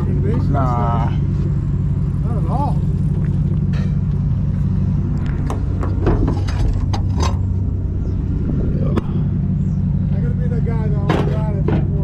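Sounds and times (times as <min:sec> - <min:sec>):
engine idling: 0:00.0 - 0:12.0
knocks and clunks: 0:05.2 - 0:07.6, 0:11.0 - 0:12.0.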